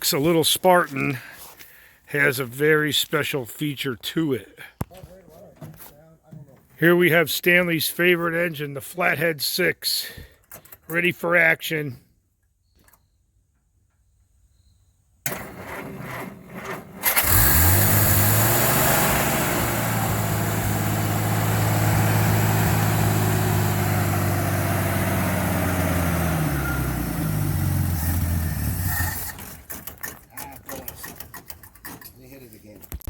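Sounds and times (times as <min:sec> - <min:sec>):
engine starter cranking: 0:15.2 - 0:20.8, 0:28.0 - 0:32.2
car engine revving: 0:17.0 - 0:29.6.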